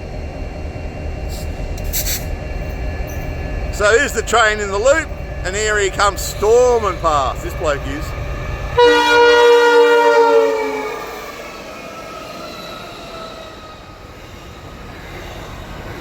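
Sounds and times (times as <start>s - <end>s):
locomotive engine rumble: 0.0s - 11.2s
train horn chord: 8.8s - 11.1s.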